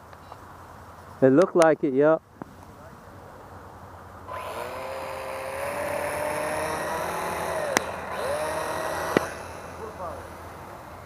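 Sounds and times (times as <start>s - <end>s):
propeller hiss: 4.2s - 11.0s
model plane motor whining: 4.3s - 11.0s.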